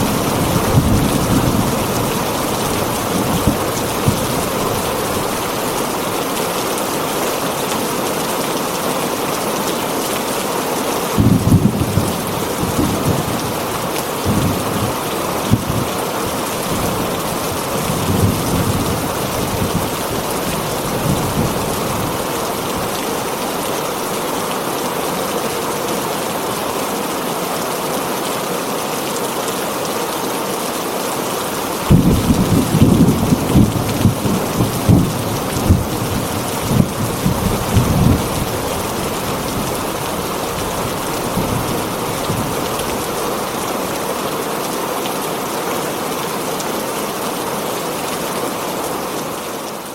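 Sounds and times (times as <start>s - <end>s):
thunder rumbling: 0.0s - 5.4s, 11.2s - 15.9s, 31.9s - 42.8s
heavy rain on a tin roof: 0.0s - 49.9s.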